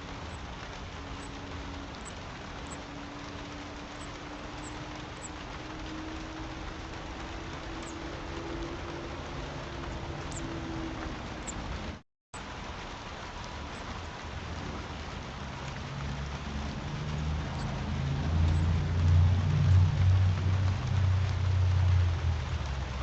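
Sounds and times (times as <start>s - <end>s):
steady outdoor hiss: 0.0s - 23.0s
low rumble: 14.4s - 23.0s.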